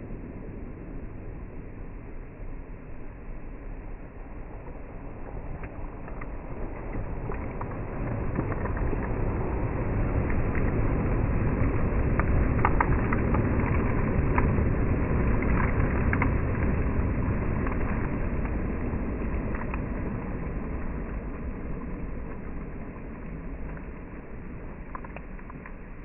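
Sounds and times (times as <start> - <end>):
small clicks: 11.6 - 26.0.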